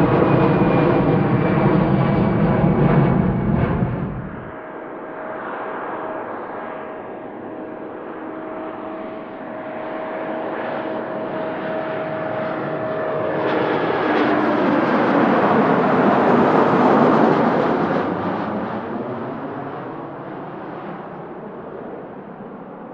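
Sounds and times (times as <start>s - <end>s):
jet airliner passing: 0.0s - 22.9s.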